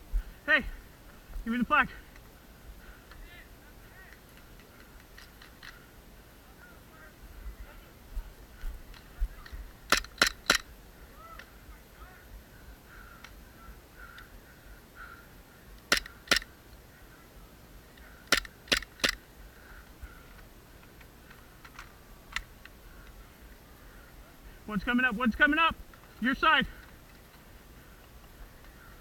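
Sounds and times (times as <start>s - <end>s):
airsoft pistol shots: 15.9s - 16.5s.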